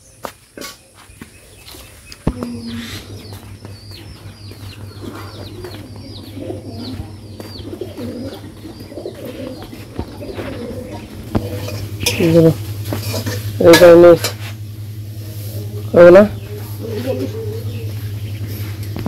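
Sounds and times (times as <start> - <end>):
low bird cooing: 2.2 - 12.8, 16.3 - 19.0.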